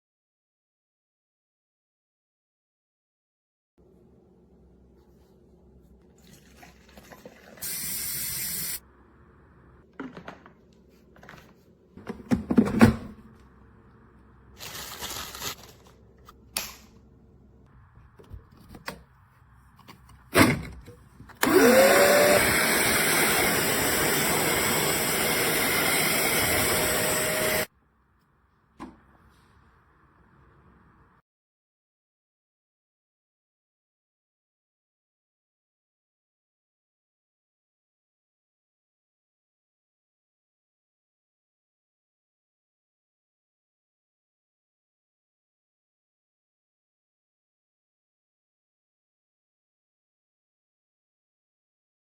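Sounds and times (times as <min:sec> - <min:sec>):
cleaner motor whining: 0:21.4 - 0:27.7.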